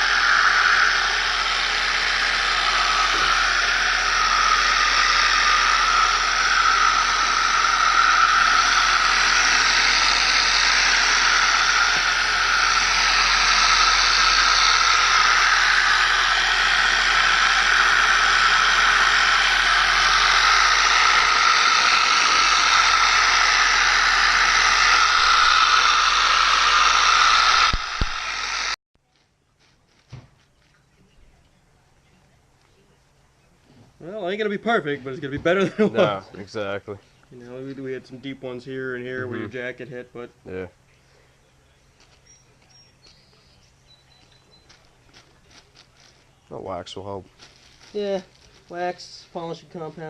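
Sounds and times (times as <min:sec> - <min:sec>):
electric sander whirring: 0:00.0 - 0:28.8.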